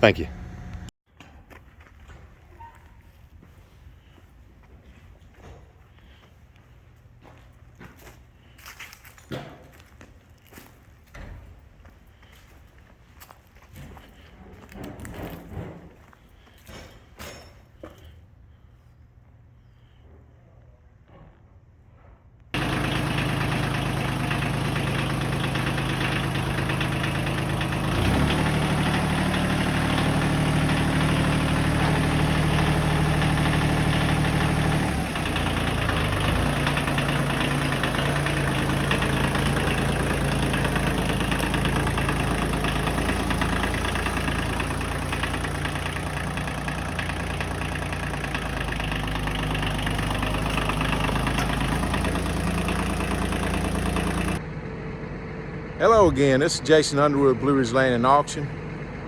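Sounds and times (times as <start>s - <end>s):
tractor diesel engine running: 0.0s - 0.9s, 22.6s - 59.0s.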